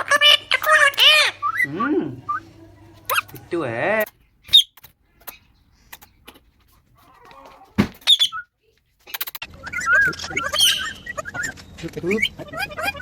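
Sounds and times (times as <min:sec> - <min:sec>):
parrot warbling chatter: 0:00.0 - 0:02.4, 0:03.1 - 0:03.5, 0:09.1 - 0:13.0.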